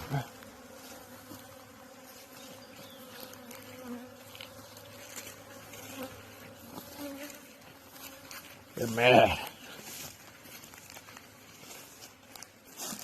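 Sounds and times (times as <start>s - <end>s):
single bee passing close: 0.0s - 8.8s
bees buzzing: 0.0s - 10.0s.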